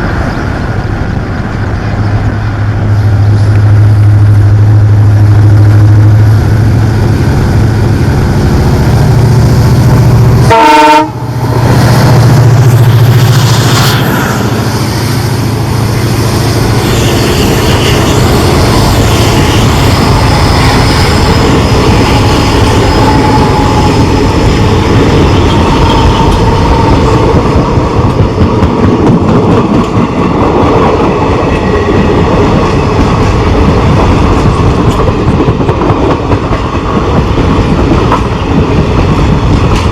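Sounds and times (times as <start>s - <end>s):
diesel locomotive engine running hard: 0.0s - 39.9s
train horn: 10.4s - 11.4s, 16.0s - 24.4s
wheel and rail clatter: 18.2s - 39.9s.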